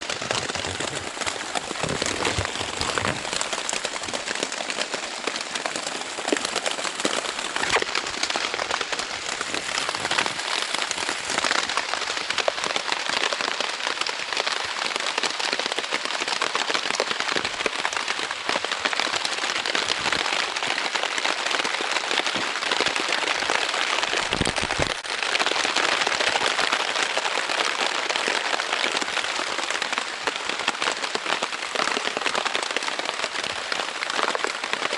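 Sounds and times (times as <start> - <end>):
heavy rain on tent fabric: 0.0 - 34.9.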